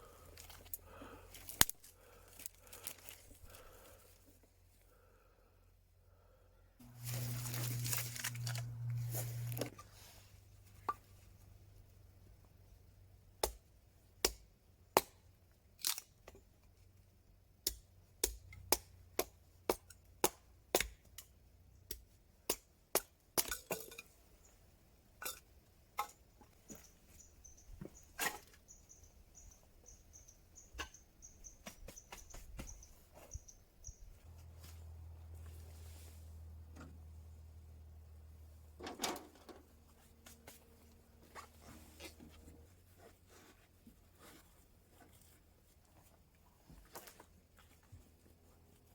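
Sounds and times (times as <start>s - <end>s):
dry wood cracking and snapping: 0.4s - 3.8s, 7.0s - 9.6s, 15.8s - 16.1s.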